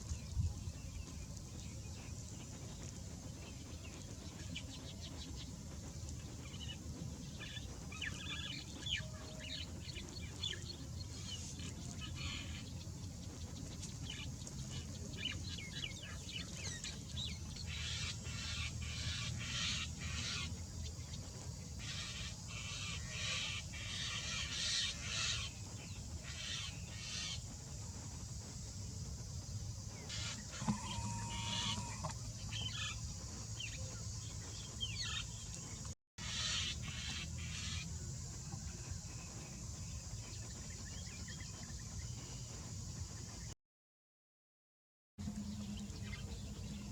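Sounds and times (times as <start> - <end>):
birds chirping: 0.0 - 43.5, 45.2 - 46.9
steady low hum: 0.0 - 43.6, 45.2 - 46.9
held tone: 30.5 - 32.1.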